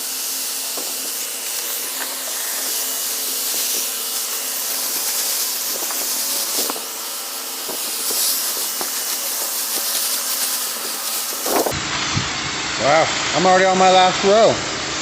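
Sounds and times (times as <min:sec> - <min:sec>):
garden sprayer hissing: 0:00.0 - 0:11.9.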